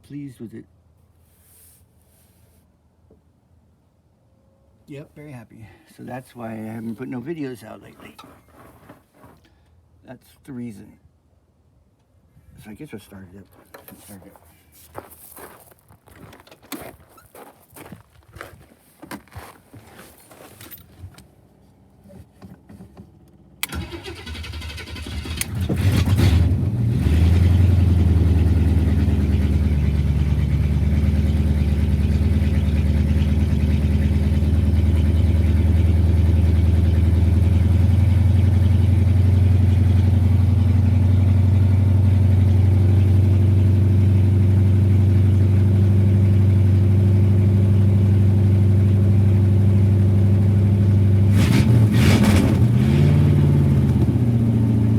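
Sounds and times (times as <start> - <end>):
starter motor cranking: 23.6 - 26.4.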